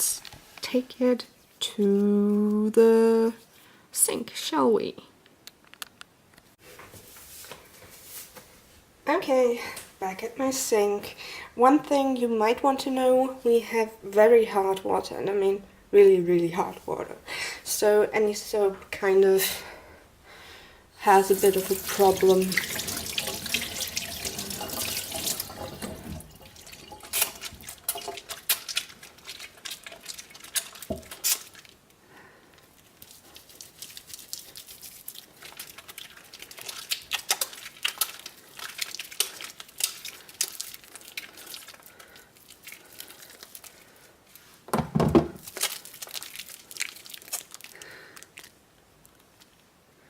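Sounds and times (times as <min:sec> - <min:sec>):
water drips: 0:21.1 - 0:31.7
tap water running into sink: 0:21.2 - 0:28.3
wet hands lathering soap: 0:21.2 - 0:31.7, 0:32.8 - 0:43.8.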